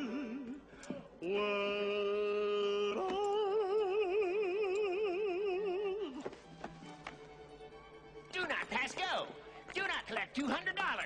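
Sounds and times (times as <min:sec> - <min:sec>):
person singing long held notes: 0:00.0 - 0:06.4.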